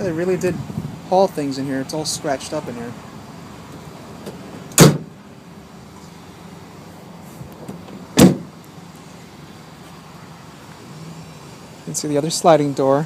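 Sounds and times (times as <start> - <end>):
van cargo doors slamming: 4.2 - 5.2, 7.6 - 8.6.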